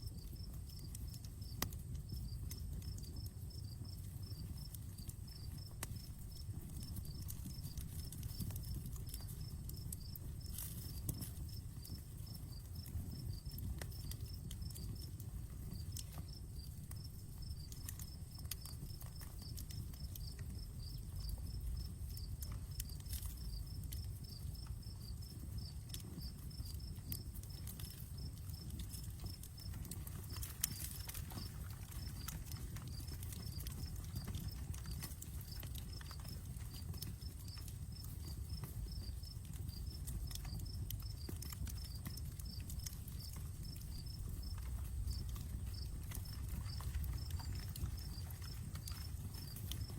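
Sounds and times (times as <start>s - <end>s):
campfire crackling and popping: 0.0s - 49.9s
crickets chirping: 0.0s - 49.9s
low rumble of burning wood: 0.0s - 49.9s.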